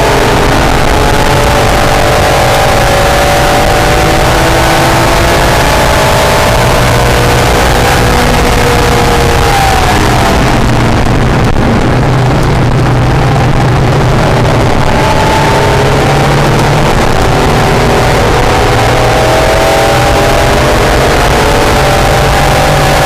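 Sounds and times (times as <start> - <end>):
sports car engine accelerating: 0.0 - 23.0
wind and road noise: 0.0 - 23.0.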